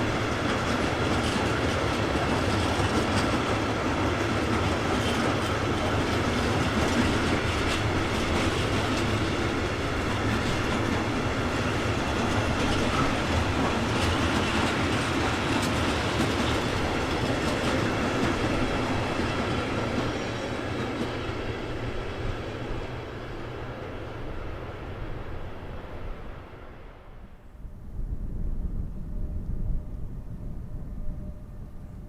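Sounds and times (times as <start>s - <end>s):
train wheels clattering on rails: 0.0s - 24.7s.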